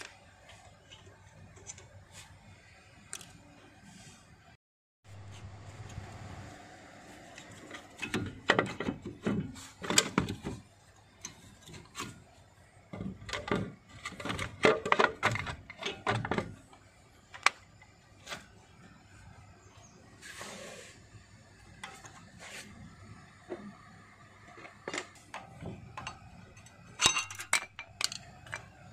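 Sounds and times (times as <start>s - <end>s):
metallic clicks of brake parts: 24.6s - 28.8s.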